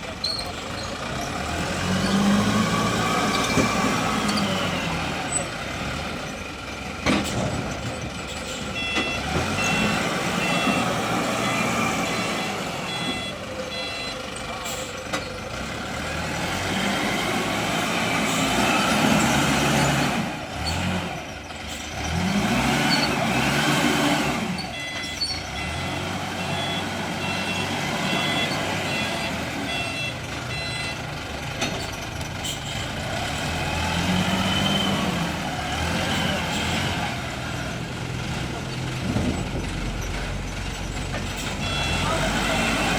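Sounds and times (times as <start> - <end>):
diesel engine revving: 0.0 - 42.9
reversing alarm beeping: 8.5 - 15.0, 24.6 - 32.6, 40.8 - 42.9.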